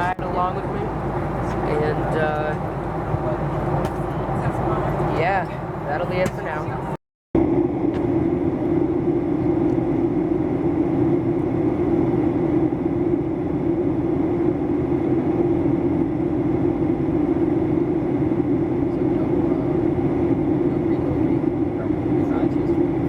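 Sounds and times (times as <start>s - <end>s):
airplane cabin engine hum: 0.0s - 23.0s
strong low drone: 7.4s - 23.0s.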